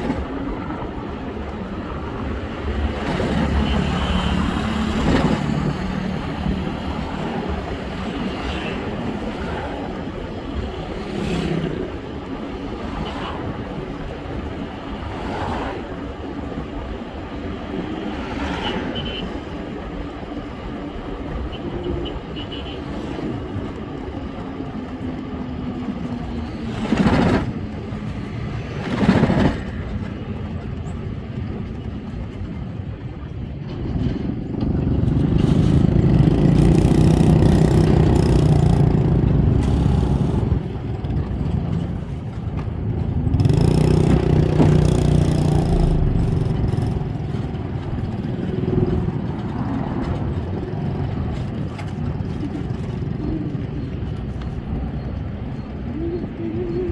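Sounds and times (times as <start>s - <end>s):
road traffic: 0.0s - 56.9s
vehicles passing quickly: 33.9s - 56.8s
heavy low rumble: 34.2s - 51.3s.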